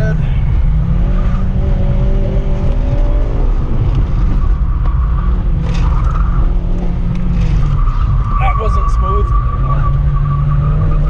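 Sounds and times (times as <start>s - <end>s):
car engine running hard: 0.0s - 11.0s
road and tyre rumble: 0.0s - 11.0s
tyres squealing: 7.3s - 11.0s.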